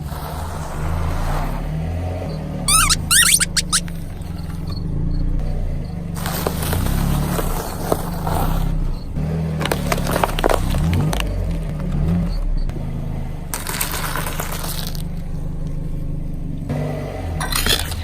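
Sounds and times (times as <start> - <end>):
car engine running slowly: 0.0 - 18.0
sharp rising squeaks: 2.2 - 9.2
objects cracking and crunching: 9.6 - 12.2, 13.5 - 15.4.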